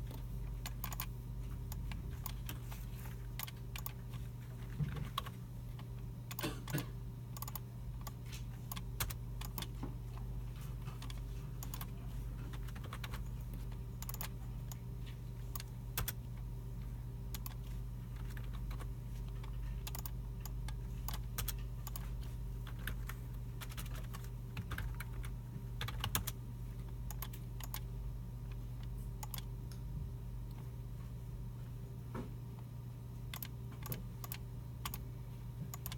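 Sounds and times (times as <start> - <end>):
keyboard typing: 0.0 - 6.8, 7.4 - 10.2, 10.8 - 14.9, 15.5 - 16.4, 17.3 - 27.9, 29.2 - 29.8, 33.3 - 35.0, 35.7 - 35.9
steady low hum: 0.0 - 35.9.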